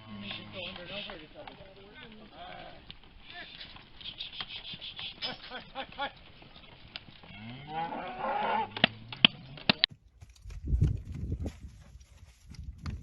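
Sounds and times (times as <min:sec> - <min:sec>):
sharp clicks: 0:03.6 - 0:05.3
cow mooing: 0:07.2 - 0:09.8.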